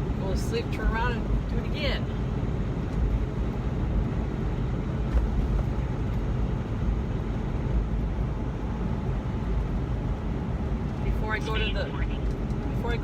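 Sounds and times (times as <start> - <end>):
road noise: 0.0 - 13.0
truck engine drone: 0.0 - 13.0.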